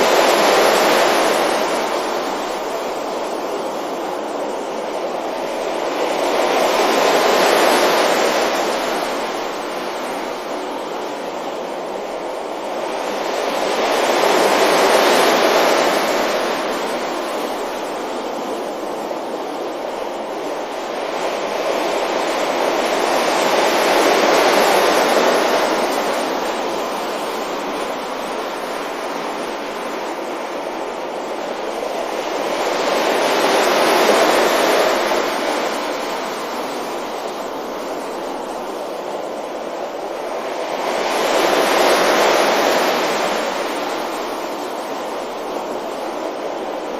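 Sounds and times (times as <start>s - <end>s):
ocean waves breaking on beach: 0.0s - 46.9s.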